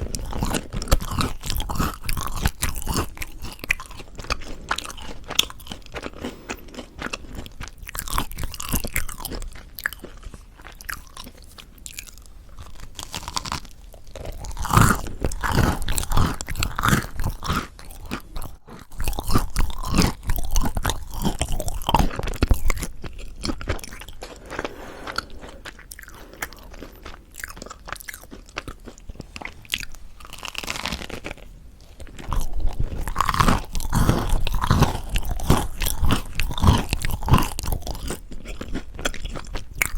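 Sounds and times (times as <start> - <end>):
person chewing crispy bread: 0.0 - 39.9.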